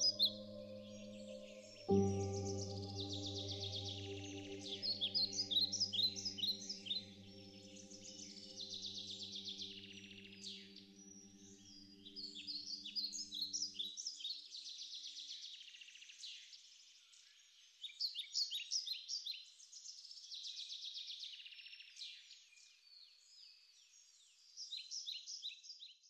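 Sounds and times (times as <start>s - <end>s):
soft sustained music chord: 0.0s - 14.0s
songbirds singing: 0.0s - 14.3s.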